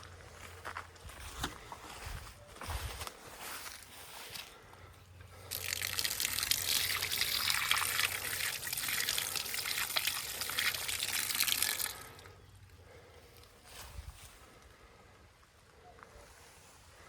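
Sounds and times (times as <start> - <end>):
running water splashing: 5.5 - 12.2.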